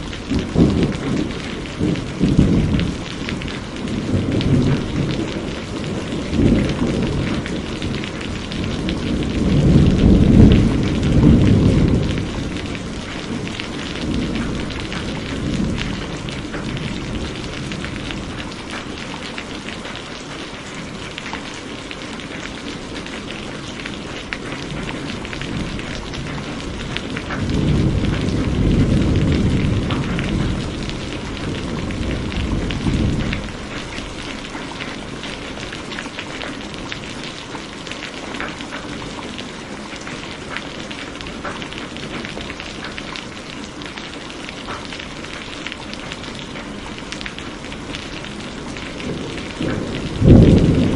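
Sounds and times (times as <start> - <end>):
thunder rumbling: 0.0 - 19.9, 22.1 - 44.0, 44.6 - 50.9
heavy rain falling: 0.0 - 50.9.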